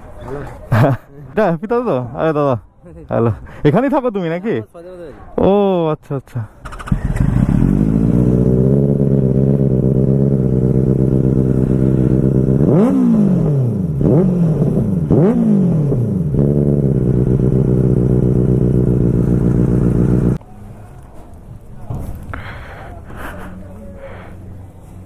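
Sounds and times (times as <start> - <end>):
motorbike engine idling: 6.6 - 20.4
motorbike engine revving: 6.6 - 20.4.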